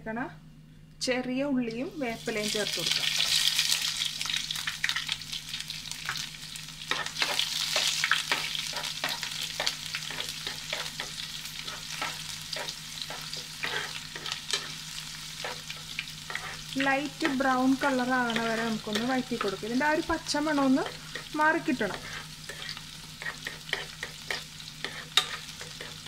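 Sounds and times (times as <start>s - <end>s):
food sizzling in hot oil: 1.8s - 26.0s
spatula scraping and tapping pan: 6.9s - 14.8s, 15.4s - 17.4s, 20.8s - 26.0s.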